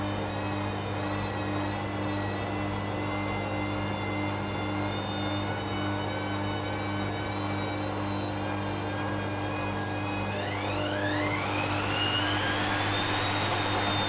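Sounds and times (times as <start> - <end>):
washing machine spinning: 8.9 - 14.0.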